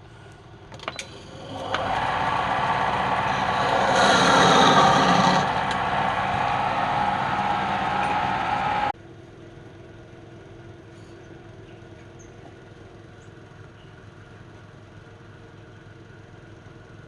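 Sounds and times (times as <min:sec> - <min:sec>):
machine hum with low rumble: 0:00.9 - 0:09.0.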